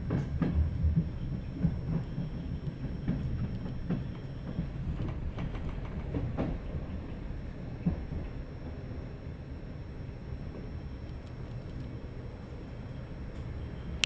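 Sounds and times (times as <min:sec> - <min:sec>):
wheels clicking over rail joints: 0:00.0 - 0:08.5
train carriage rumble: 0:00.0 - 0:14.0.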